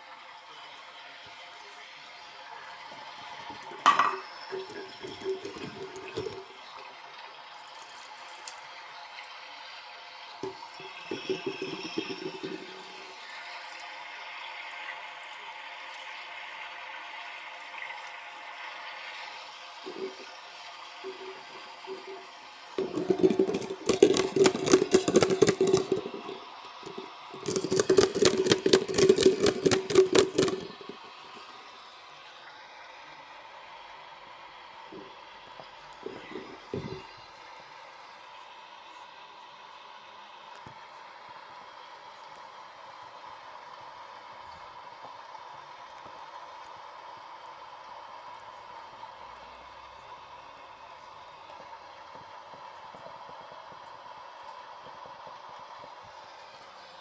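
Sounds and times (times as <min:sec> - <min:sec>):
washing machine water sloshing: 0:03.3 - 0:06.6, 0:10.4 - 0:13.8, 0:19.9 - 0:20.4
washing machine drum turning: 0:03.6 - 0:06.5, 0:10.4 - 0:13.2, 0:19.9 - 0:20.3, 0:21.0 - 0:31.5
rapid rattling and clatter: 0:22.8 - 0:31.1.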